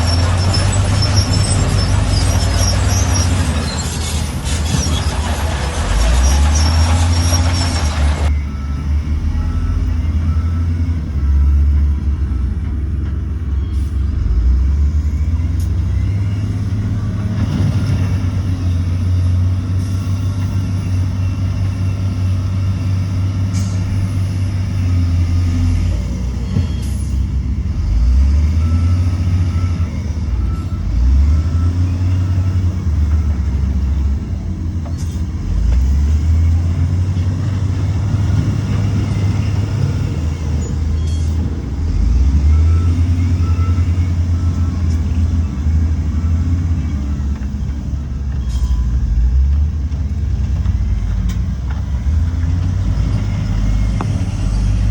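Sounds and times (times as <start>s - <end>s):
heavy machinery diesel engine rumble: 0.0s - 54.9s.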